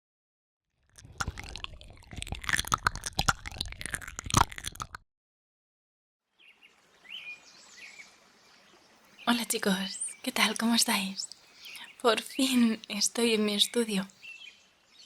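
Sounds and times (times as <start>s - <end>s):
wet mouth clicks and smacks: 1.0s - 5.0s
bird chirping: 9.1s - 15.0s.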